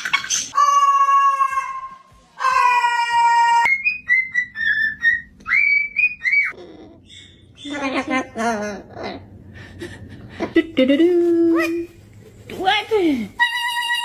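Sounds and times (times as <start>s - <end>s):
parrot whistling: 3.6s - 7.7s.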